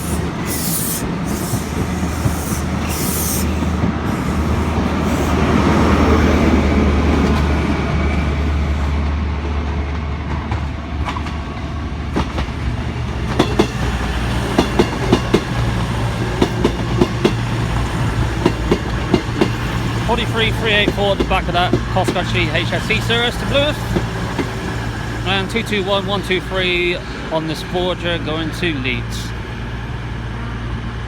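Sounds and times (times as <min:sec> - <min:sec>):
diesel engine drone: 0:17.4 - 0:31.0.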